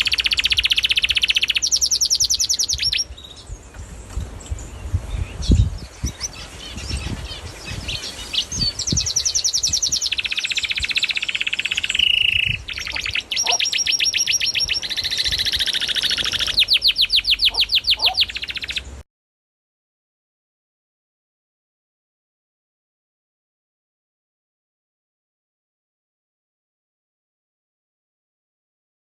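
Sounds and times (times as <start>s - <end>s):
canary singing trills: 0.0s - 19.0s.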